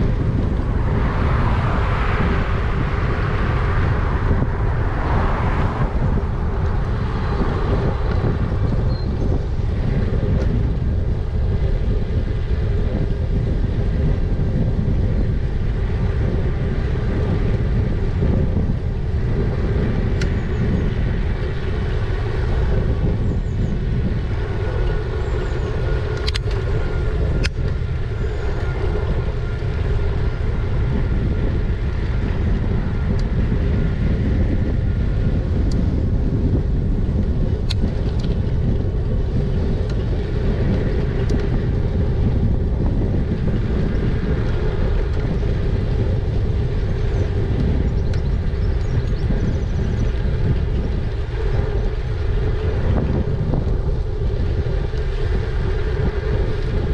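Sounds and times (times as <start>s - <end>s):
road noise: 0.0s - 56.9s
steady motor hum: 0.0s - 56.9s
wind rushing over microphone: 0.0s - 56.9s
sharp clicks: 26.1s - 26.6s.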